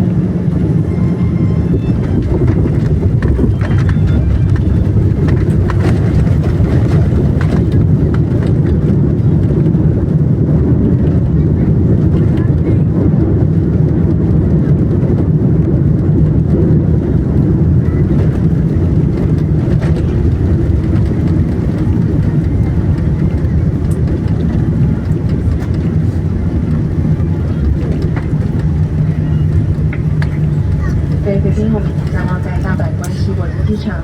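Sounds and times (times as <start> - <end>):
jet engines running: 0.0 - 34.0
wheels rolling on runway: 0.0 - 34.0.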